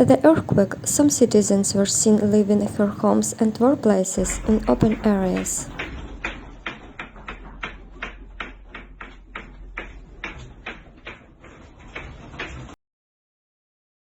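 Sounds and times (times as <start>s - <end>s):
low steady hum: 0.0s - 12.7s
light irregular taps: 4.2s - 12.8s.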